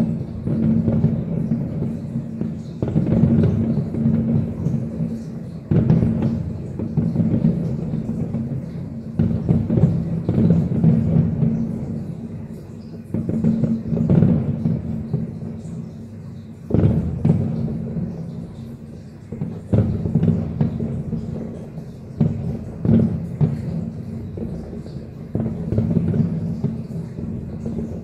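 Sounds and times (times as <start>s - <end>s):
distant firework booms: 0.0s - 28.0s.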